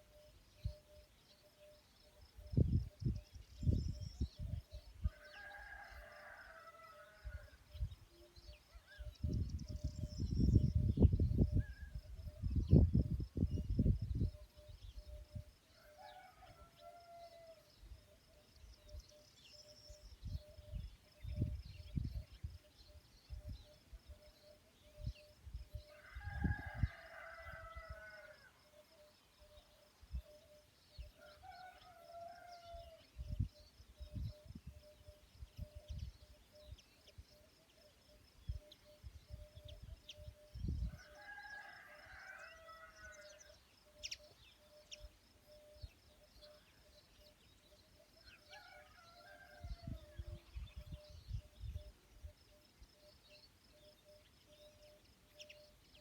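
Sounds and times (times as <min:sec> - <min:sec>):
rooster crowing: 0:05.0 - 0:07.6, 0:15.8 - 0:17.7, 0:25.9 - 0:28.6, 0:31.2 - 0:33.0, 0:40.9 - 0:43.6, 0:48.2 - 0:50.4.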